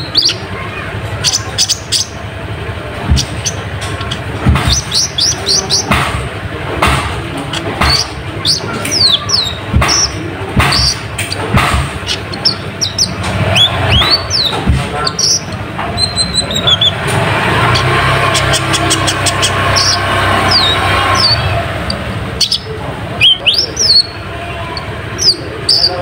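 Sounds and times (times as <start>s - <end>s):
bird chirping: 0.0s - 6.2s, 6.8s - 26.0s
sharp clicks or knocks: 3.0s - 21.3s.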